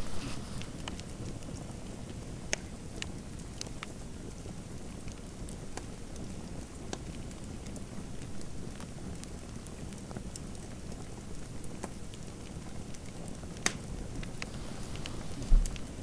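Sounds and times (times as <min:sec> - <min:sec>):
fireplace crackling: 0:00.0 - 0:02.2, 0:13.6 - 0:16.0
short dull thump: 0:14.5 - 0:15.9.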